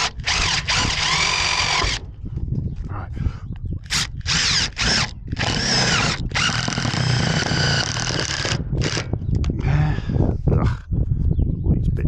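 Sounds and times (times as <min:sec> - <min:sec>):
cordless power drill whining: 0:00.0 - 0:02.2, 0:03.9 - 0:09.4.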